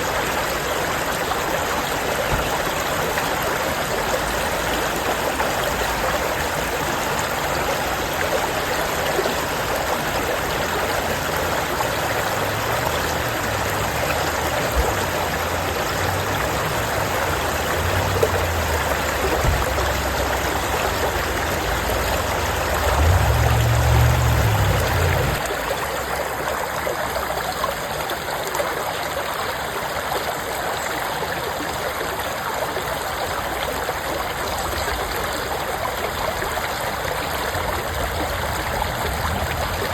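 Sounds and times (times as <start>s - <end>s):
stream water flowing and splashing: 0.0s - 39.9s
low rumble: 22.7s - 25.4s.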